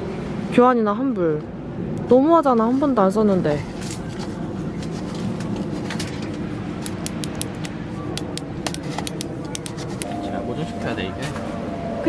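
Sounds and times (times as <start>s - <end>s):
light clicks and taps: 6.8s - 10.2s.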